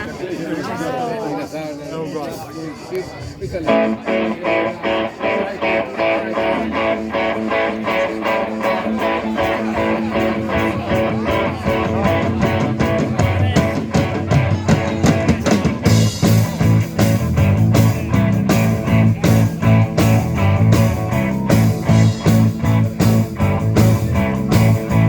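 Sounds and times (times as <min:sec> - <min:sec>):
live rock band: 0:03.6 - 0:25.0
guitar playing pulsed figure: 0:03.7 - 0:13.1, 0:15.8 - 0:25.0.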